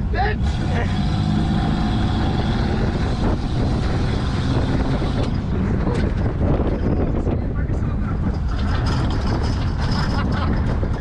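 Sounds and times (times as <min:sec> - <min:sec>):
truck engine rumble: 0:00.0 - 0:11.0.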